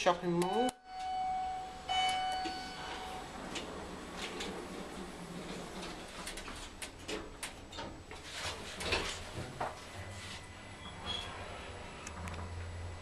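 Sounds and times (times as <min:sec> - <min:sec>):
low steady lift hum: 0:00.0 - 0:13.0
lift doors closing: 0:00.9 - 0:13.0.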